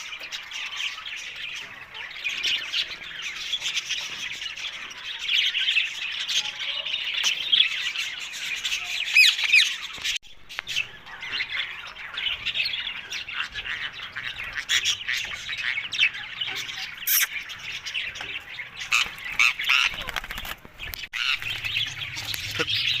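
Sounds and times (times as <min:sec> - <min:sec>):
parakeet chattering and squawking: 0:11.4 - 0:17.6, 0:18.6 - 0:20.4, 0:21.1 - 0:23.0.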